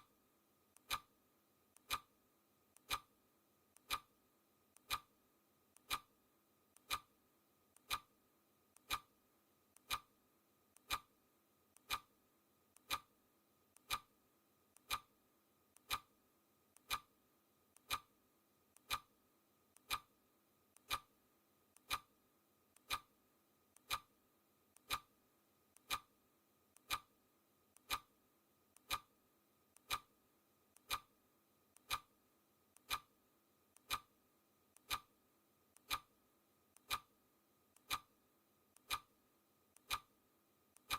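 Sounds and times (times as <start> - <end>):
clock ticking: 0.8 - 1.1, 1.7 - 2.1, 2.7 - 3.1, 3.7 - 4.1, 4.7 - 5.1, 5.7 - 6.1, 6.7 - 7.1, 7.7 - 8.1, 8.7 - 9.1, 9.7 - 10.1, 10.7 - 11.1, 11.7 - 12.1, 12.7 - 13.1, 13.7 - 14.1, 14.7 - 15.1, 15.7 - 16.1, 16.7 - 17.1, 17.7 - 18.1, 18.7 - 19.1, 19.7 - 21.1, 21.7 - 23.1, 23.7 - 24.1, 24.7 - 26.2, 26.8 - 28.2, 28.8 - 29.2, 29.8 - 30.1, 30.7 - 31.1, 31.7 - 34.1, 34.7 - 35.1, 35.8 - 36.2, 36.8 - 37.2, 37.8 - 38.2, 38.8 - 39.1, 39.8 - 40.2.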